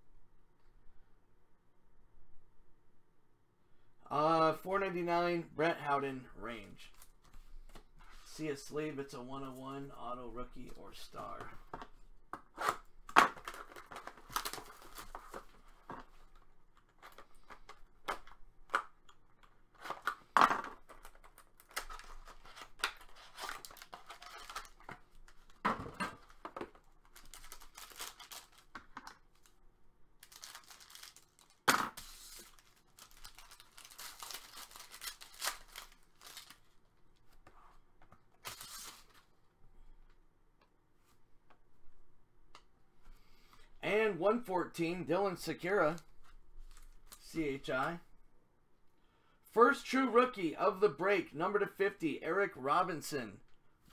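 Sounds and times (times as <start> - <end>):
card pack wrappers tearing and crinkling: 12.5 - 16.0, 19.7 - 29.6, 30.2 - 36.8, 38.4 - 39.3.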